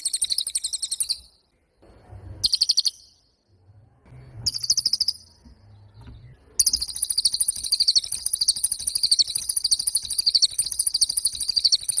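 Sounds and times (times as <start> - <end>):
songbird high-pitched trill: 0.0 - 1.4, 2.4 - 3.3, 4.4 - 5.4, 6.3 - 12.0.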